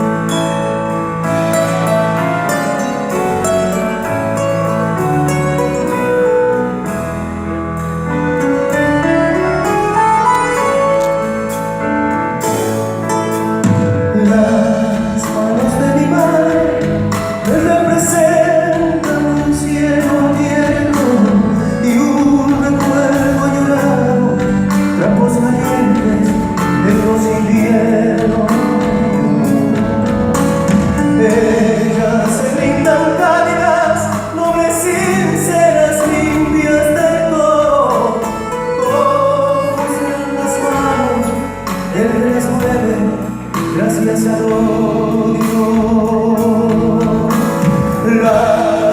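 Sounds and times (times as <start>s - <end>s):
folk singing with accompaniment: 13.7s - 48.9s.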